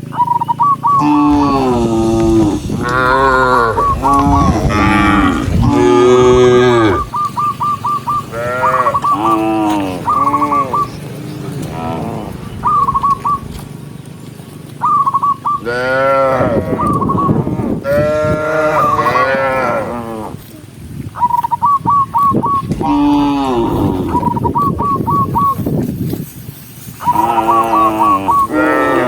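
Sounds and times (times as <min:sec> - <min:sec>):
cows mooing: 0:01.0 - 0:07.4, 0:08.2 - 0:10.9, 0:11.5 - 0:12.5, 0:15.6 - 0:20.3, 0:22.7 - 0:25.0, 0:27.1 - 0:29.0.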